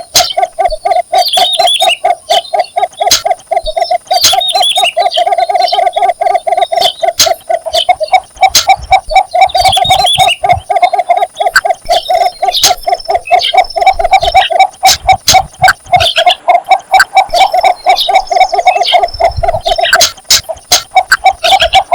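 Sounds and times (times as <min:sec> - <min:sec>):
bittern low clucking call: 0:00.0 - 0:21.9
small birds chirping: 0:00.0 - 0:21.9.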